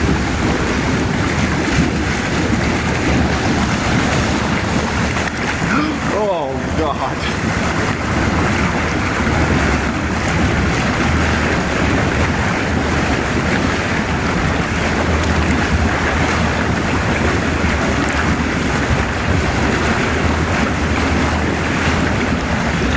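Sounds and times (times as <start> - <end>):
jacuzzi water bubbling: 0.0 - 22.9.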